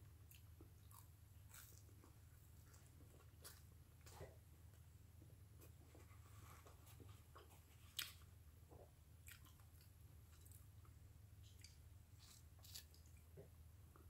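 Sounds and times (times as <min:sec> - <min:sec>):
low steady hum: 0:00.0 - 0:14.0
person chewing: 0:00.2 - 0:04.4, 0:06.9 - 0:08.3, 0:09.2 - 0:13.5.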